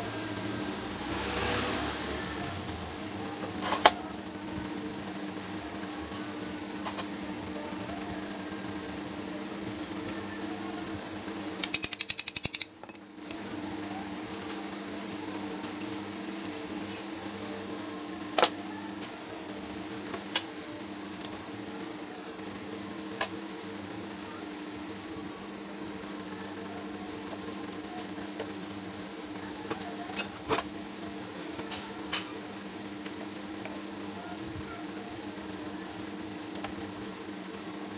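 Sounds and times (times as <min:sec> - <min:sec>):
steady background hum: 0:02.2 - 0:37.9
sharp metallic clinks: 0:11.6 - 0:12.7.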